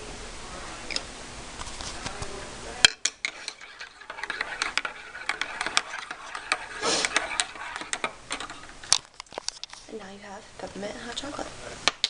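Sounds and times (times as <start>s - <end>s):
metal spoon clinking in mug: 2.9s - 8.6s.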